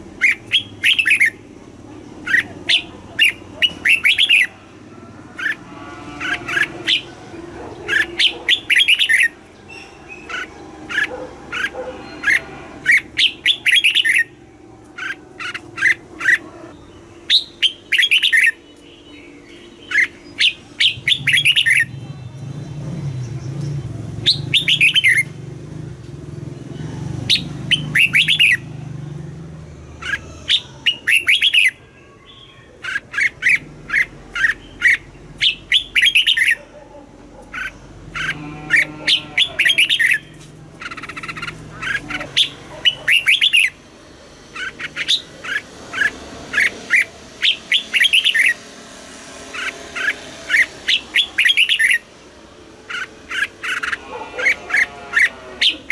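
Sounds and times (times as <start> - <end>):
bird singing whistled notes: 16.8 - 22.0, 24.2 - 25.3, 27.3 - 28.6, 49.6 - 52.0.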